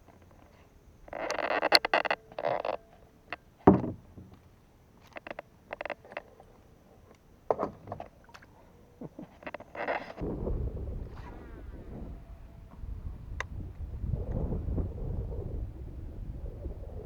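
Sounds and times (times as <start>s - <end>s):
hollow knocks on kayak: 3.7s - 4.4s.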